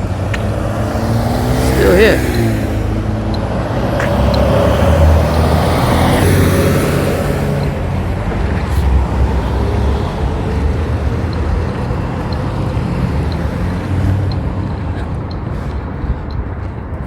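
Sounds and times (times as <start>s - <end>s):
road noise: 0.0s - 17.0s
vehicle engine rumble: 0.0s - 17.0s
faint regular ticks: 3.2s - 6.2s, 9.4s - 16.8s.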